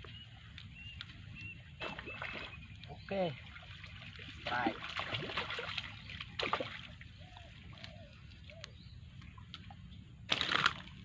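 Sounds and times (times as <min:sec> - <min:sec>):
fish splashing at water surface: 0:03.5 - 0:07.1, 0:10.3 - 0:11.0.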